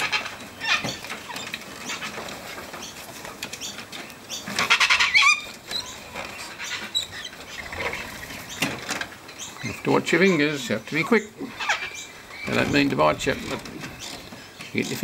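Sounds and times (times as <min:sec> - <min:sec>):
beaks and feet scratching tapping: 0:00.0 - 0:15.0
cockatoo squawk: 0:04.6 - 0:08.4, 0:11.4 - 0:12.3.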